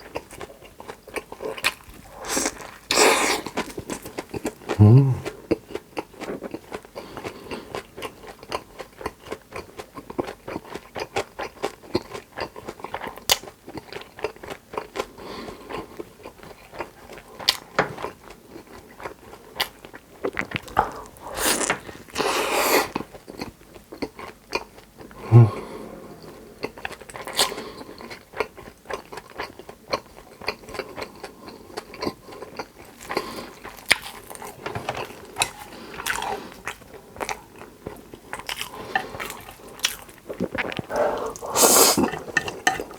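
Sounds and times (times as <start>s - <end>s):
chewing crispy food: 0.0s - 42.9s
person humming low: 4.8s - 5.3s, 25.2s - 25.8s.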